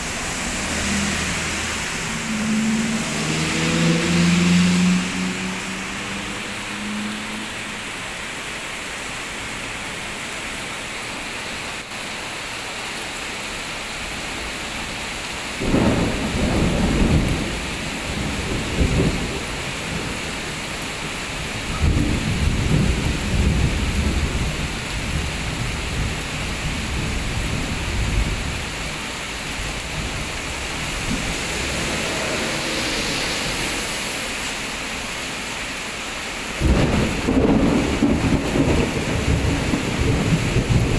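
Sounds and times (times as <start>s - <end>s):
heavy rain pouring on road: 0.0s - 40.9s
truck passing on wet road: 0.0s - 40.9s
thunder rumbling: 15.6s - 20.6s, 36.6s - 40.9s.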